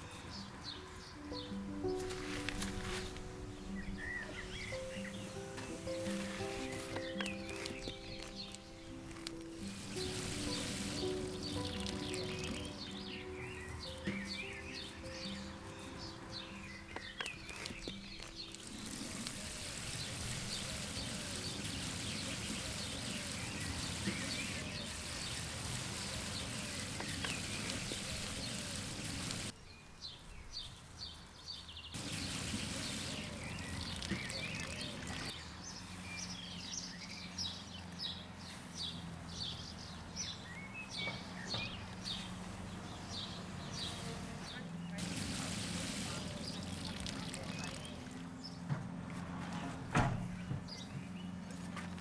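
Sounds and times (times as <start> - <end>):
wind hiss: 0.0 - 30.8, 31.8 - 35.8, 45.0 - 47.2
small birds chirping: 0.0 - 48.7, 50.3 - 52.0.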